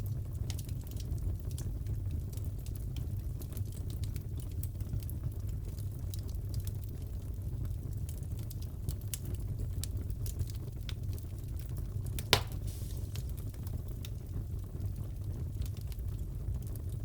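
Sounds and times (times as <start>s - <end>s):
wood fire crackling: 0.0s - 17.0s
fire pops: 10.2s - 14.5s.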